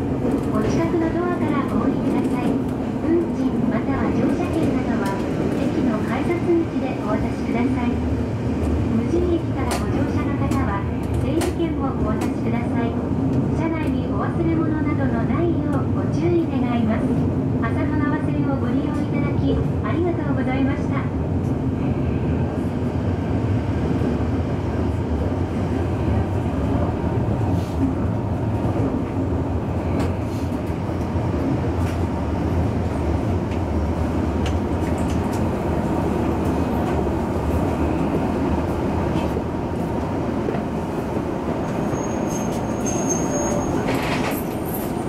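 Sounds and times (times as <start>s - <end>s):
train wheels rumbling: 22.4s - 45.0s
faint brake squeal: 41.8s - 44.9s.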